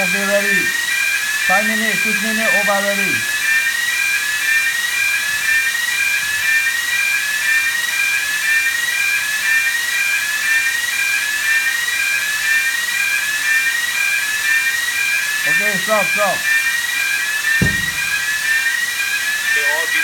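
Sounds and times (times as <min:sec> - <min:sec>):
electronic alarm: 0:00.0 - 0:10.0, 0:12.6 - 0:16.6, 0:17.6 - 0:18.4.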